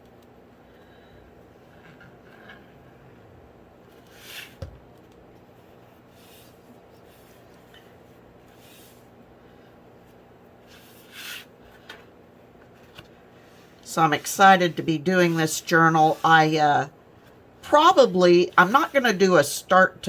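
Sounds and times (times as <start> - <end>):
hands rubbing fabric and paper: 12.7 - 16.6.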